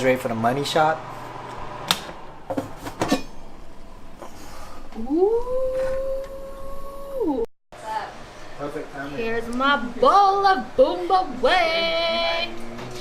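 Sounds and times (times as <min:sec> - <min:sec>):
person singing drawn-out ooh: 0:05.0 - 0:07.5.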